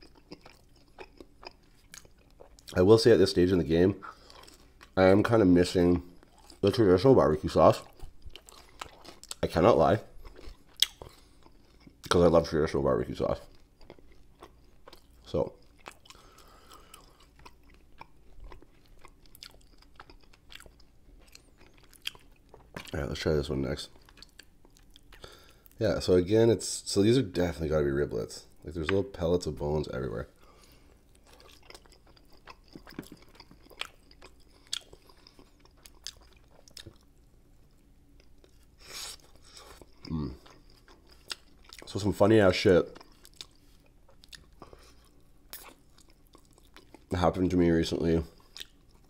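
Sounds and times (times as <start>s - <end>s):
wet chewing clicks and smacks: 0.0s - 2.8s, 7.7s - 12.2s, 13.3s - 23.1s, 23.9s - 25.8s, 31.0s - 41.9s, 42.9s - 47.1s, 48.4s - 49.0s.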